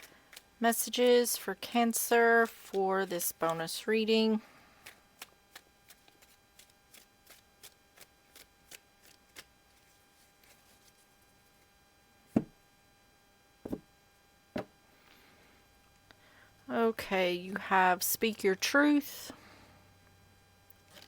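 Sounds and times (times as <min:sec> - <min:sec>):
cards being shuffled: 0:04.8 - 0:11.1
soft thuds of cards on table: 0:12.4 - 0:12.6.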